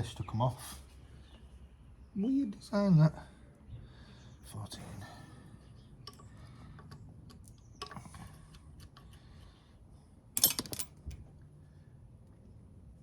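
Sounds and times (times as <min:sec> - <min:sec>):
metal tools clicking on engine: 0:10.4 - 0:11.2.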